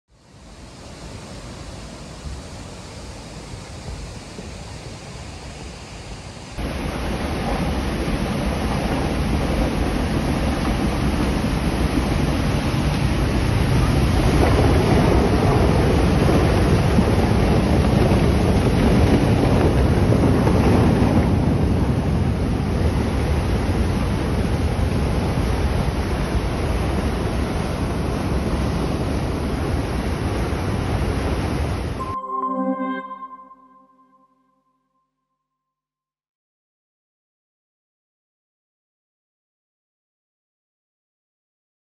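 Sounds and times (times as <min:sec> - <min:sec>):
flooding river rushing: 0:06.6 - 0:21.1.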